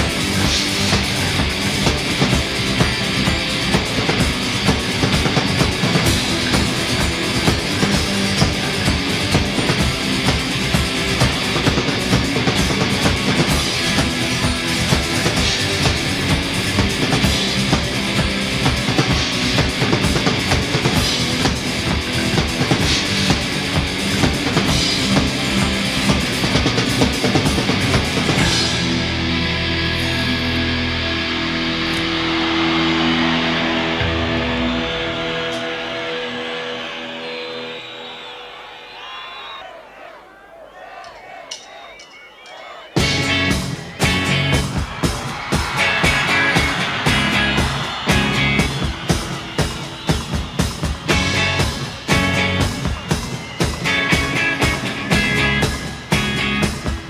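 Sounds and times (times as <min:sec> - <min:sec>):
drum kit steady beat: 0:00.0 - 0:29.2, 0:40.9 - 0:57.0
bass guitar: 0:00.0 - 0:36.5, 0:43.0 - 0:57.0
electric guitar: 0:00.0 - 0:37.7, 0:43.0 - 0:57.0.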